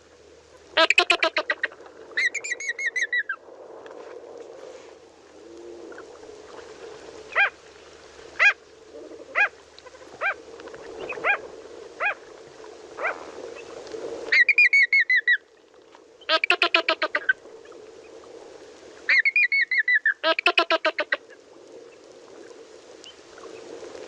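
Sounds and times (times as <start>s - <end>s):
flamingo honking: 0.7s - 2.4s, 16.3s - 17.4s, 20.2s - 21.2s.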